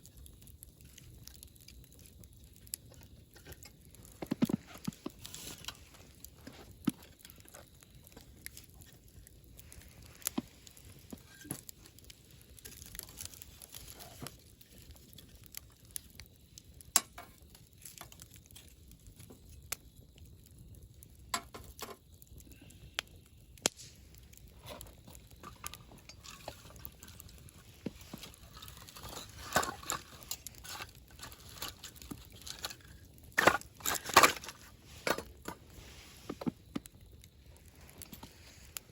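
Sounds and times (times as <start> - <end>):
campfire crackling: 0.0 - 38.9
faint low hiss: 22.4 - 30.8.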